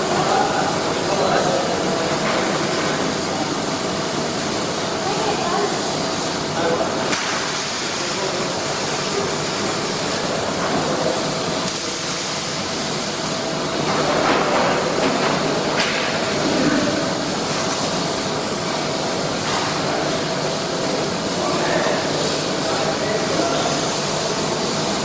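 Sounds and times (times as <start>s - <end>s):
steady workshop hiss: 0.0s - 25.0s.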